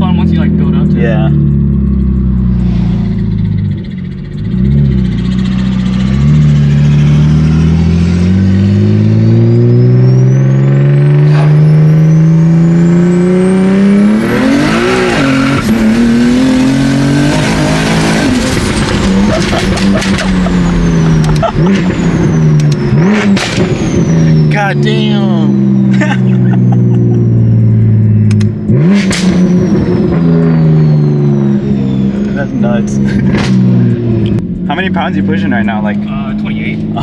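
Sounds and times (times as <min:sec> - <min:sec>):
car engine revving at full throttle: 0:00.0 - 0:37.0
exhaust pops: 0:17.4 - 0:24.7, 0:27.6 - 0:30.6, 0:31.8 - 0:37.0
high turbo whistle: 0:29.2 - 0:32.8.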